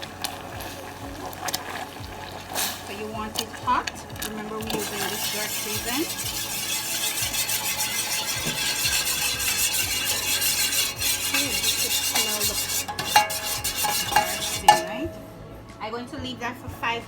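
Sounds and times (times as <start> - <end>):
sizzling hiss: 0.0 - 15.0
spoon scraping sauce in pan: 4.7 - 15.1
spoon clinking against pan: 4.7 - 15.2.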